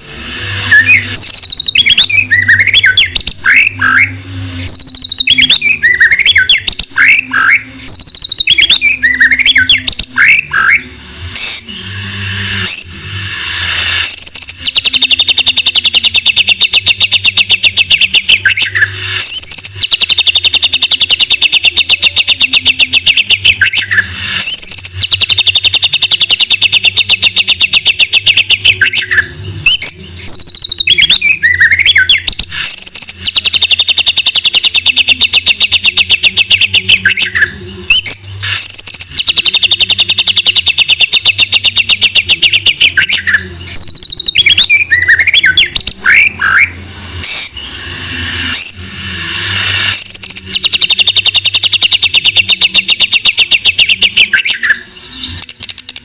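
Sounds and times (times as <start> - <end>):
bird whistled notes: 0.0 - 10.8, 11.4 - 56.0
bird singing rattling trills: 0.6 - 10.8, 14.0 - 48.8.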